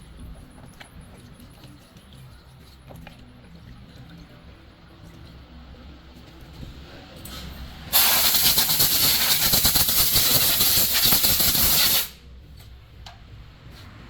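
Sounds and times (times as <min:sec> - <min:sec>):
compressed air hissing: 0:07.9 - 0:12.2.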